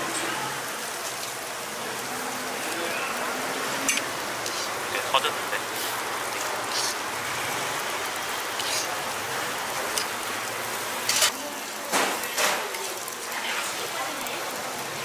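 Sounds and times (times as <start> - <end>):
food sizzling in oil: 0.0 - 15.0
utensils clicking and tapping: 9.9 - 10.2, 11.0 - 13.1.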